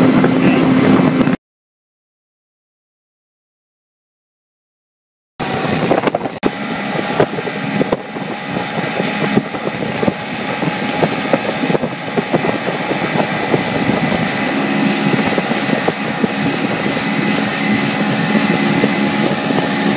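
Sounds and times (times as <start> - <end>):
outboard motor running: 0.0 - 1.4, 5.4 - 19.9
wind buffeting microphone: 0.0 - 1.4, 5.4 - 19.9.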